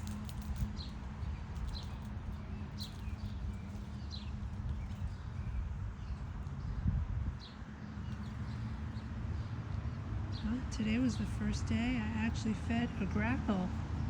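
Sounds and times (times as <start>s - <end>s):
songbird chirping: 0.0s - 13.8s
steady low rumble: 0.0s - 14.0s.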